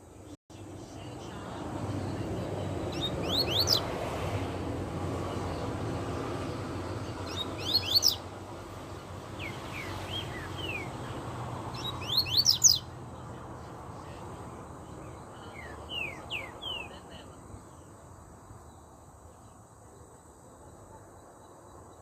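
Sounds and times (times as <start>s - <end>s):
bird singing sharp sweeping notes: 1.9s - 4.0s, 5.2s - 13.0s, 15.0s - 17.9s.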